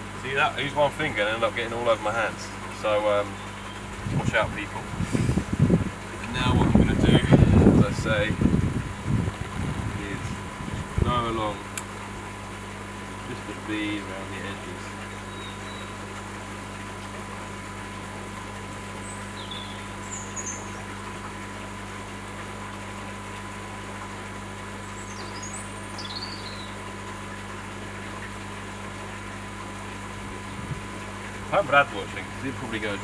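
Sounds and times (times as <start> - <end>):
steady low hum: 0.0 - 33.0
short high bird chirps: 15.3 - 16.0.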